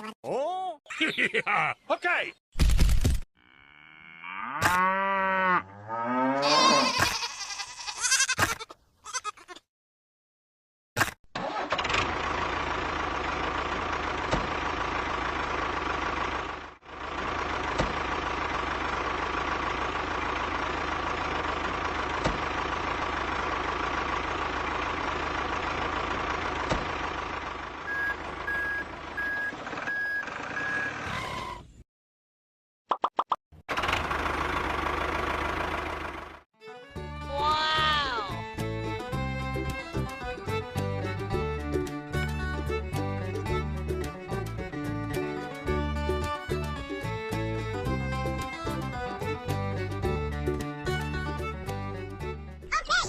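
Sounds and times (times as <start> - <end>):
gliding bleat-like sounds: 6.4 - 9.6.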